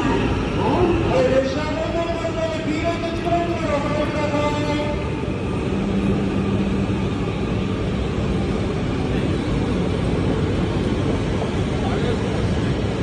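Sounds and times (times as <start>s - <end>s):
low hum: 0.0s - 13.0s
train rumbling slowly: 0.0s - 13.0s.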